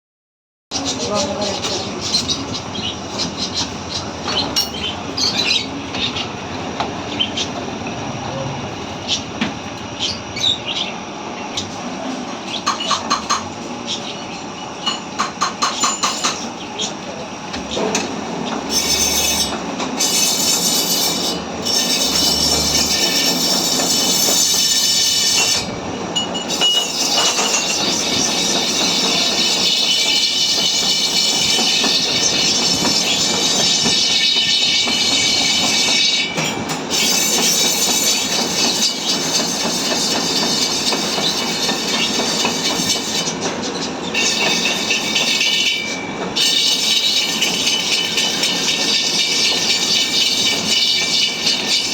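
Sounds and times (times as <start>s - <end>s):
metallic screech with whistling: 0.8s - 5.8s, 18.6s - 25.7s, 26.4s - 51.9s.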